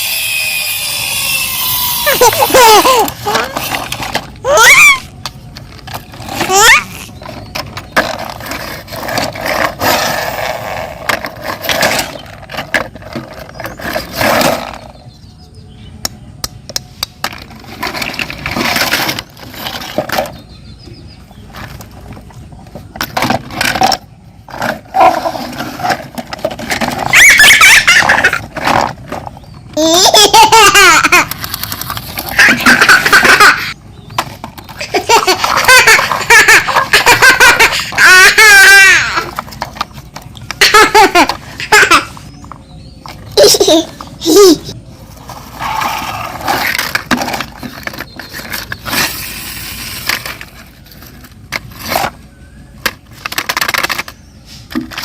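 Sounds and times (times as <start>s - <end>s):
high-pitched laughter: 2.0s - 5.1s, 27.1s - 28.6s, 29.8s - 31.6s, 32.2s - 33.8s, 34.8s - 39.4s, 40.5s - 42.3s, 43.3s - 44.8s.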